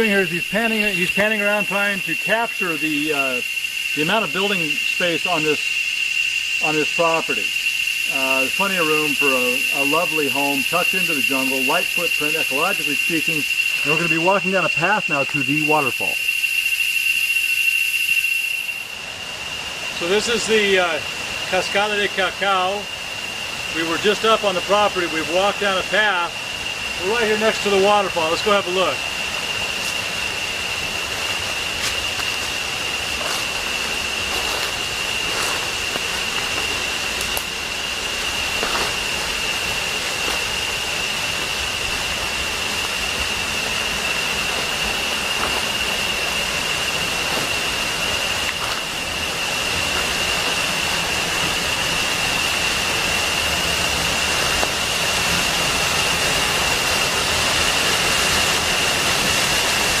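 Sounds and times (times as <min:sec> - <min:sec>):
waterfall rushing: 0:27.0 - 1:00.0.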